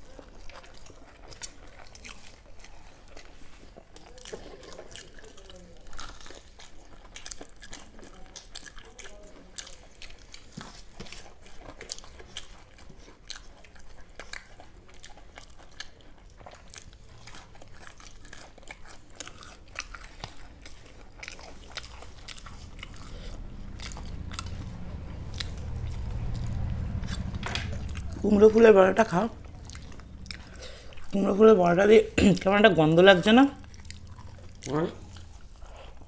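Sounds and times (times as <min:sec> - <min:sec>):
crunching crisp food: 0:00.0 - 0:36.0
low rumble: 0:22.0 - 0:36.0.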